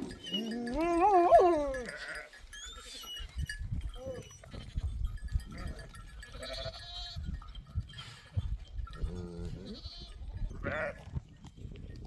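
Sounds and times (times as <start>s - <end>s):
goats and sheep bleating: 0.0s - 3.0s, 4.0s - 7.4s, 9.0s - 11.2s.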